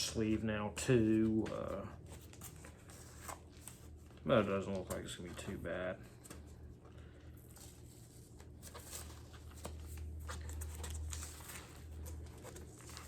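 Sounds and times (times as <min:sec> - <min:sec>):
steady low hum: 0:00.0 - 0:13.0
paper sleeve rustling: 0:07.4 - 0:13.0.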